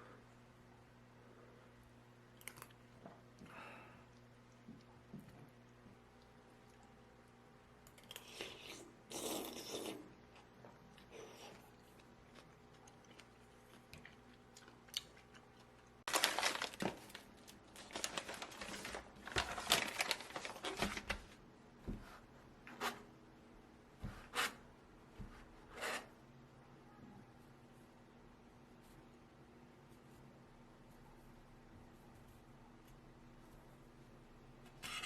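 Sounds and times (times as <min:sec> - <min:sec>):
food packaging tearing and crinkling: 0:16.1 - 0:21.2.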